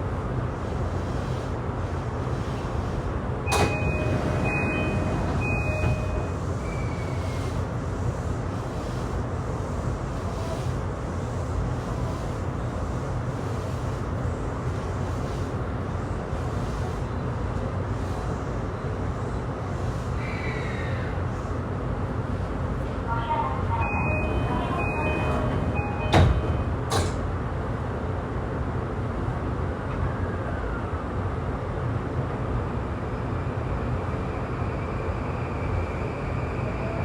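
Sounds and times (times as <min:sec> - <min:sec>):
train wheels rumbling on rail: 0:00.0 - 0:37.0
thin high tone: 0:23.6 - 0:26.7.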